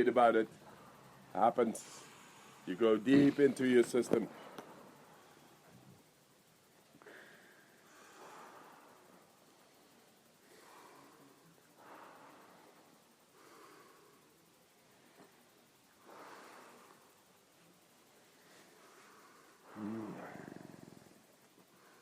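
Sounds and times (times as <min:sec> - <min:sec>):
deep breathing: 0:00.5 - 0:03.4, 0:04.3 - 0:22.0.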